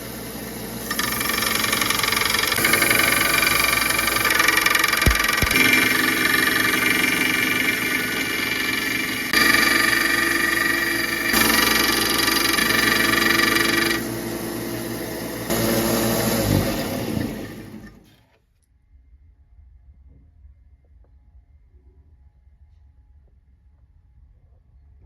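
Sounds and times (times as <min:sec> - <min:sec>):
power tool motor whining: 0:00.8 - 0:18.0.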